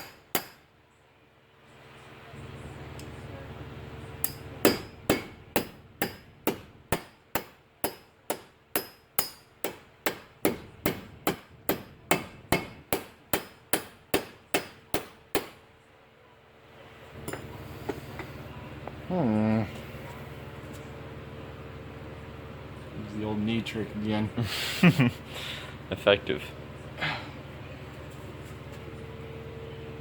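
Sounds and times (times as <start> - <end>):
hammer striking metal: 0.0 - 0.7, 4.2 - 15.6, 17.2 - 17.5.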